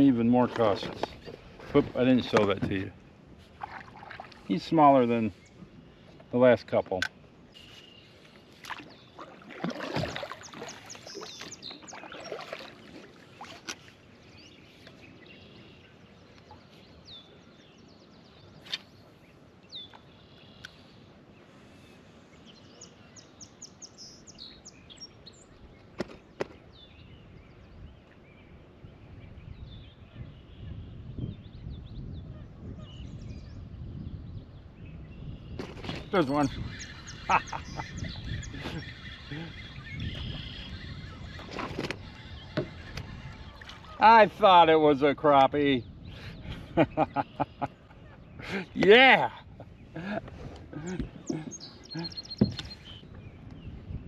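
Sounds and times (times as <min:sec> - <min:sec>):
bird chirps: 0:07.5 - 0:09.2, 0:10.0 - 0:13.6, 0:34.8 - 0:44.1, 0:50.8 - 0:53.8.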